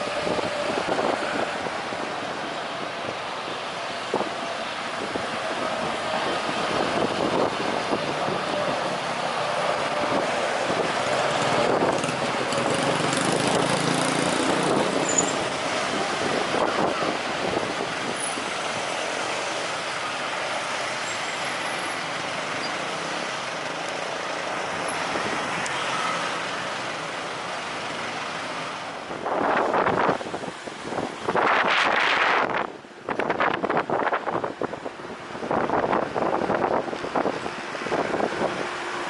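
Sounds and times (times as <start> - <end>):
wind buffeting microphone: 0.0 - 18.9, 29.0 - 39.0.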